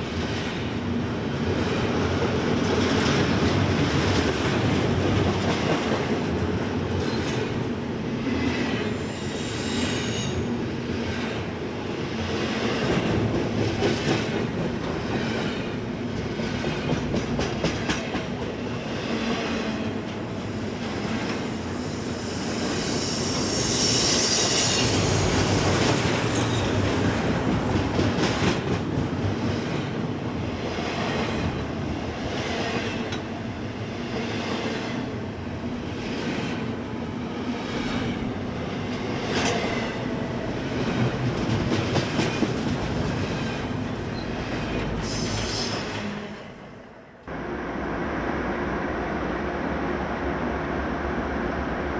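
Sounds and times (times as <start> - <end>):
train cars rolling on rails: 0.0 - 51.9
high wheel squeal: 8.9 - 10.5, 19.8 - 28.6.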